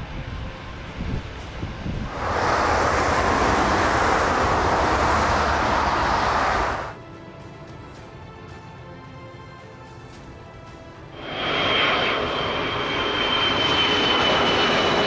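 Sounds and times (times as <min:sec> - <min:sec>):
jet engines roaring: 0:00.1 - 0:07.0, 0:11.2 - 0:15.0
low rumble: 0:00.1 - 0:07.0.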